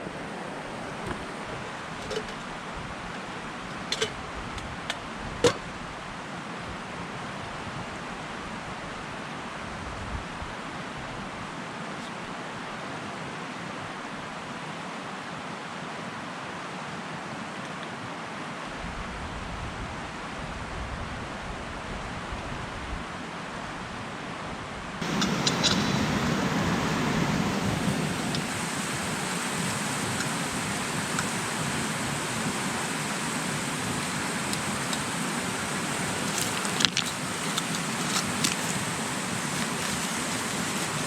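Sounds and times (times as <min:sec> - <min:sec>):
river water rushing: 0:00.0 - 0:04.3, 0:25.0 - 0:41.0
wind rumbling on microphone: 0:09.6 - 0:11.5, 0:18.8 - 0:41.0.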